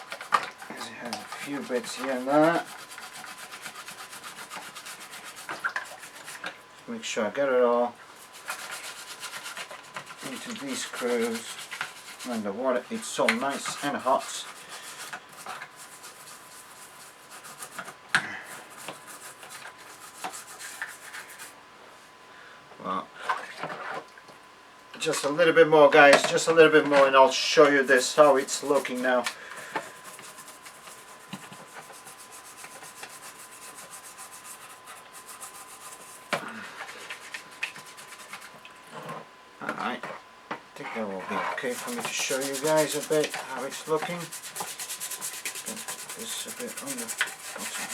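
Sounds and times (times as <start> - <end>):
scratchy scrubbing strokes: 0.0 - 6.5, 8.2 - 21.6, 27.6 - 38.6, 40.8 - 47.9.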